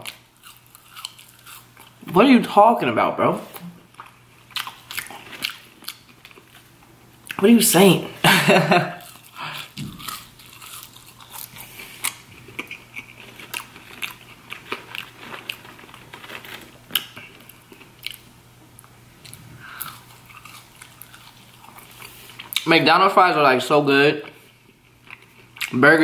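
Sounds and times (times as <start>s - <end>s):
person chewing fries: 0.0s - 2.0s, 3.9s - 7.5s, 9.0s - 22.7s, 24.3s - 25.8s.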